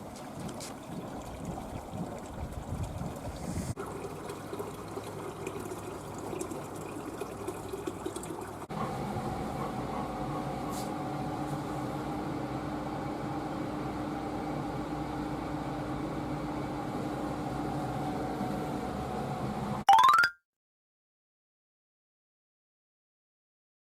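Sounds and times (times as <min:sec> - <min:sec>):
water running in a bath: 0:00.0 - 0:08.7.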